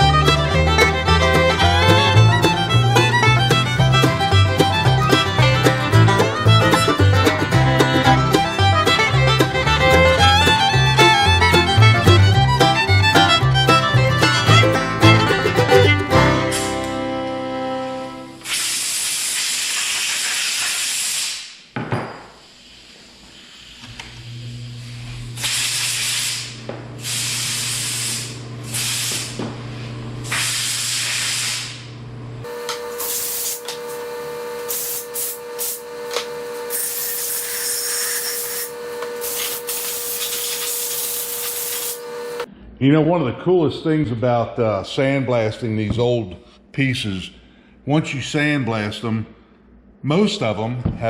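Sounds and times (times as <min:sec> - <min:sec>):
low machine hum: 0:00.0 - 0:18.4, 0:23.8 - 0:25.8, 0:31.7 - 0:33.0
high-pressure spray hissing: 0:18.4 - 0:21.7, 0:22.3 - 0:29.4, 0:30.2 - 0:31.8, 0:32.9 - 0:33.7, 0:34.7 - 0:35.8, 0:36.7 - 0:42.0.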